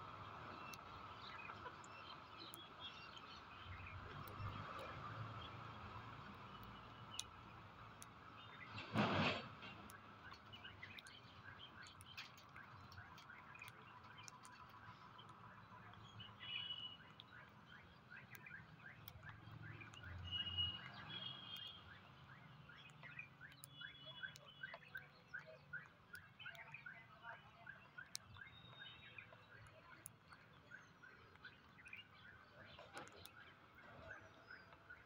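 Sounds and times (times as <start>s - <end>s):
soft clicks: 0.2s - 8.8s, 9.8s - 35.0s
faint bird chirping: 9.7s - 35.0s.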